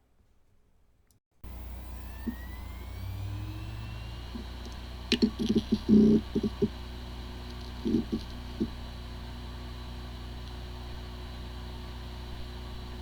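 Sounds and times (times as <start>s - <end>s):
hard drive heads seeking ticks: 1.4s - 11.5s
hard drive spinning up: 1.4s - 13.0s.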